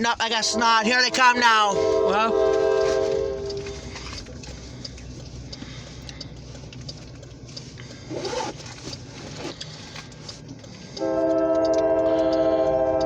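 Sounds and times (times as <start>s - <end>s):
diesel locomotive engines rumbling: 0.0s - 13.0s
faint ticks: 3.0s - 13.0s.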